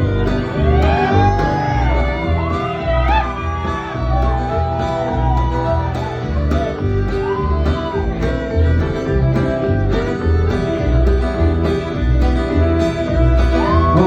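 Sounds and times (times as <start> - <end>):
fiddle melody: 0.0 - 14.0
low bass notes: 0.0 - 14.0
strummed acoustic guitar: 0.0 - 14.0.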